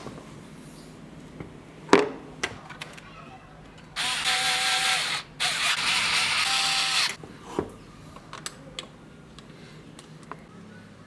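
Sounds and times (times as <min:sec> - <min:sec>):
power tool motor running: 0:04.0 - 0:07.2.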